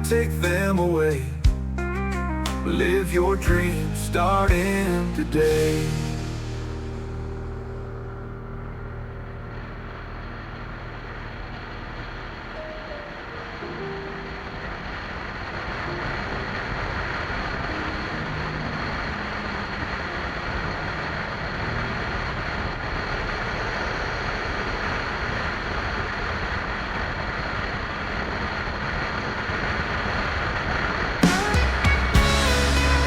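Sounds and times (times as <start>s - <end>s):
music: 0.0s - 10.2s, 31.2s - 33.0s.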